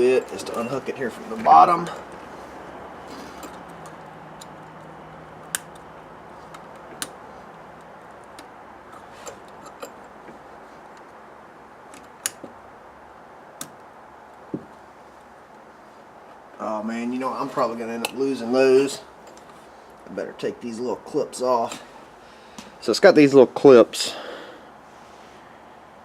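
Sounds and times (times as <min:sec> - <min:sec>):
steady background hiss: 0:00.0 - 0:26.0
metal parts and tools clicking: 0:08.2 - 0:10.2.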